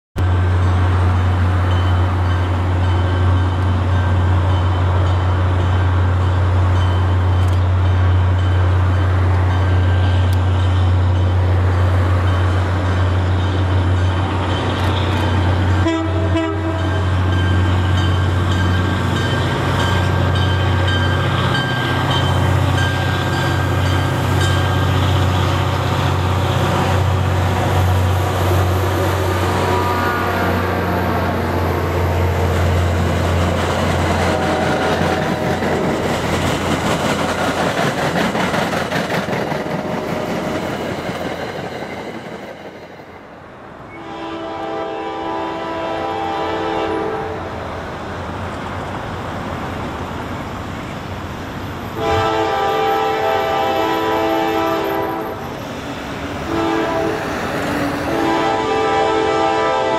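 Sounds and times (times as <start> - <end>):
train passing rumble: 0.2 - 59.9
train horn: 15.8 - 17.3, 28.8 - 31.6, 34.0 - 35.6, 43.9 - 47.6, 52.0 - 55.5, 56.4 - 57.3, 58.0 - 59.9.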